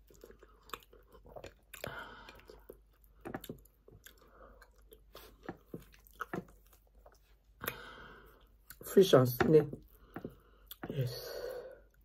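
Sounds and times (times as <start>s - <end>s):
close chewing with mouth smacks: 0.0s - 7.8s, 9.7s - 11.0s.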